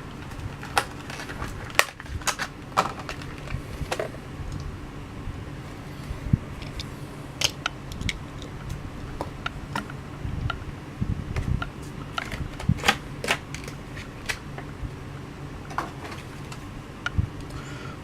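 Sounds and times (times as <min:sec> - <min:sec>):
steady low hum: 0:00.0 - 0:18.0
plastic blister pack crackling: 0:00.1 - 0:04.7.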